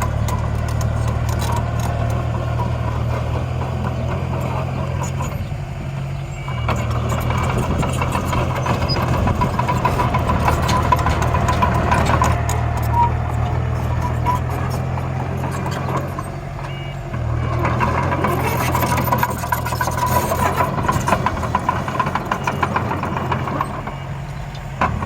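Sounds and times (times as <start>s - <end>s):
clicks and scraping of soil and stones: 0.0s - 5.3s
miniature machines droning: 0.0s - 25.0s.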